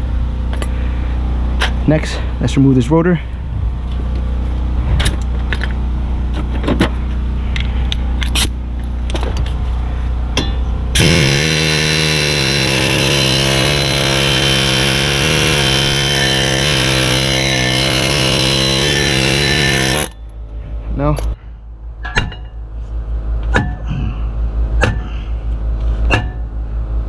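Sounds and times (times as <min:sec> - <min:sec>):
low steady hum: 0:00.0 - 0:27.0
power tool running: 0:10.9 - 0:20.3.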